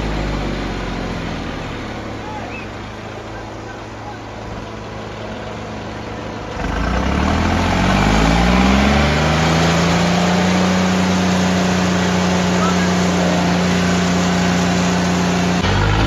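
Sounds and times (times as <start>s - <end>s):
tractor diesel engine revving: 0.0s - 16.0s.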